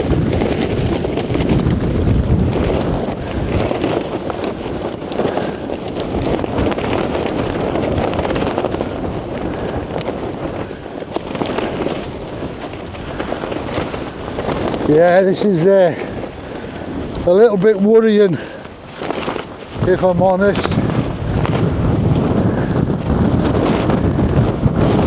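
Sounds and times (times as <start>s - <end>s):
wind buffeting tent and microphone: 0.0s - 25.0s.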